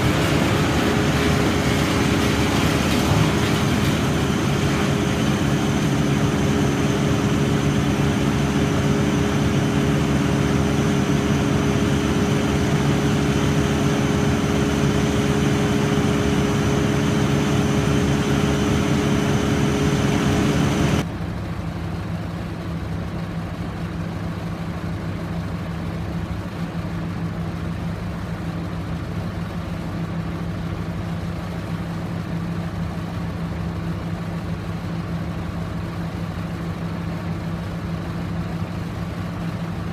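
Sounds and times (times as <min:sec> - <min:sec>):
heavy engine running: 0:00.0 - 0:39.9.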